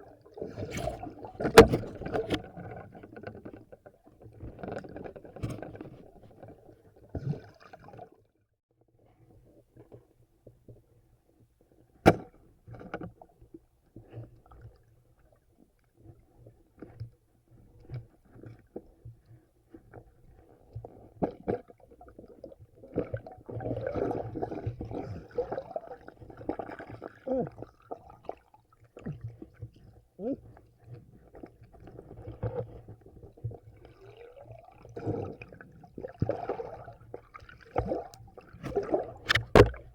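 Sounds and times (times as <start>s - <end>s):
river water sloshing and gurgling: 0.0s - 8.3s, 20.6s - 39.9s
sharp loud click: 39.3s - 39.8s.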